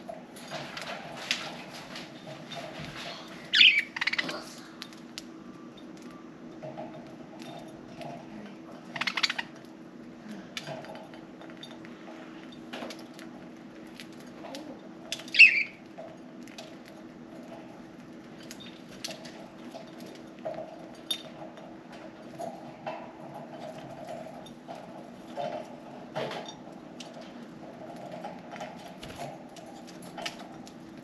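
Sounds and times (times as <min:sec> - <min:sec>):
budgie chirp: 0:03.5 - 0:04.3, 0:15.3 - 0:15.8.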